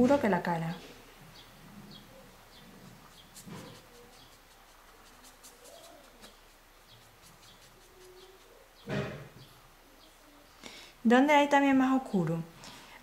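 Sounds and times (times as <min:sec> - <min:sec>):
small birds chirping: 0:00.6 - 0:10.9.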